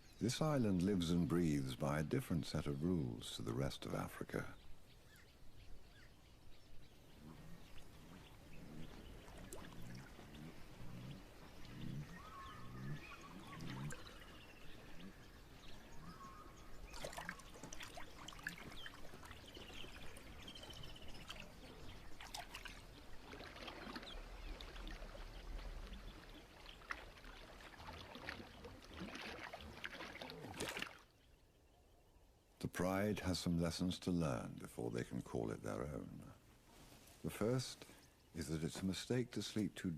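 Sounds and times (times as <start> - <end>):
bird calls: 0.0 - 36.3
animal sounds: 5.9 - 31.0
repeated low animal calls: 6.7 - 30.7
water trickling: 6.9 - 31.4.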